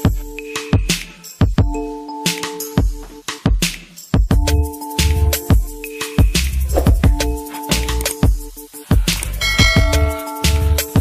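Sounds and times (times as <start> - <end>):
drum beat: 5.5 - 8.4
bass line: 6.4 - 8.1.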